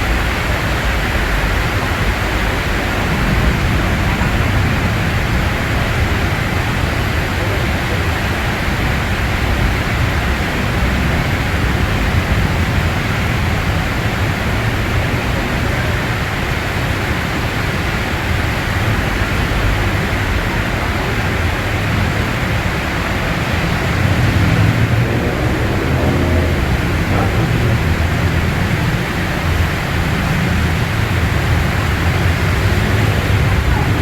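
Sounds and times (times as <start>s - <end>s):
heavy rain hiss: 0.0s - 34.0s
road traffic rumble: 0.0s - 34.0s
vehicle engine speeding up: 21.7s - 34.0s.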